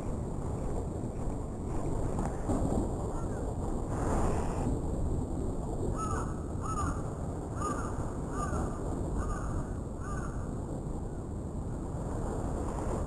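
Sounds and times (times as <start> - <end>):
low wind noise: 0.0 - 13.0
crow cawing: 6.0 - 7.0, 7.6 - 8.6, 9.2 - 10.4.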